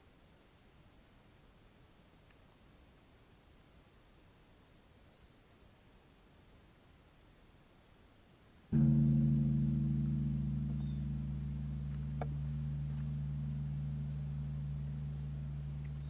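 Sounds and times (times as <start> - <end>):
large bell ringing: 8.8 - 16.0.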